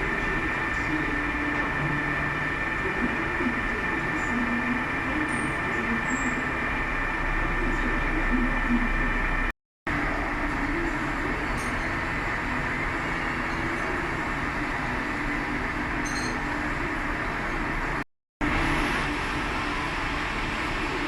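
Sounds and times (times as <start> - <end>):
lathe running hum: 0.0 - 21.0.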